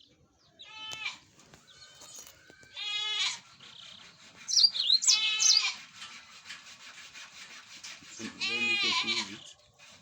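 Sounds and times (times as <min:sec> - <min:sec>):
goat bleating: 0:02.7 - 0:03.4, 0:05.0 - 0:05.8, 0:08.4 - 0:09.5
high bird chirps: 0:03.4 - 0:05.7.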